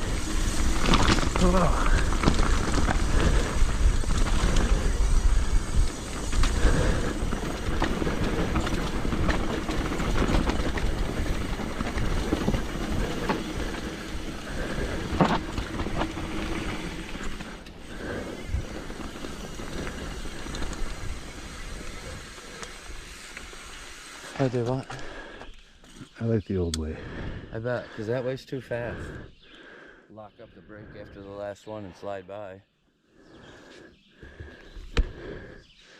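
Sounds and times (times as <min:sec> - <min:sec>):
wind rumbling on microphone: 0:00.0 - 0:23.2
bike chain and frame rattling: 0:00.0 - 0:25.2
bike tyres rolling on dirt: 0:00.0 - 0:29.2.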